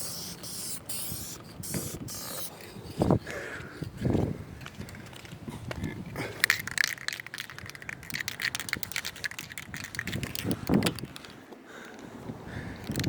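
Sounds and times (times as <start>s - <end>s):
spray can ball rattling: 0.0s - 2.6s, 6.4s - 11.3s
wind buffeting microphone: 0.9s - 11.4s, 12.0s - 13.0s.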